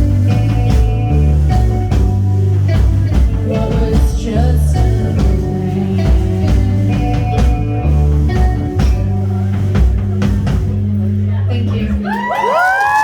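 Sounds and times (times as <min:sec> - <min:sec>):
live rock band playing: 0:00.0 - 0:13.0
person singing: 0:03.1 - 0:09.8.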